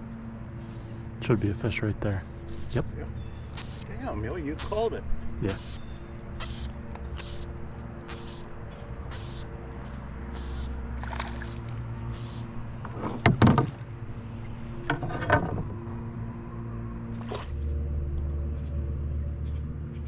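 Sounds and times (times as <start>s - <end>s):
steady low hum: 0.0s - 20.0s
knocks and thumps in canoe: 12.8s - 13.9s.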